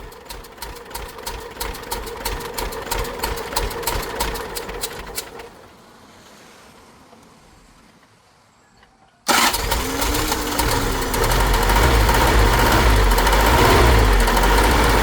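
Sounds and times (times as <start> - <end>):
car engine ticking: 0.0 - 5.6, 9.3 - 15.0.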